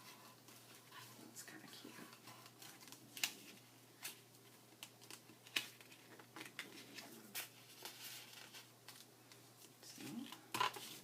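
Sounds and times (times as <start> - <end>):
paper rustling: 4.8 - 9.1.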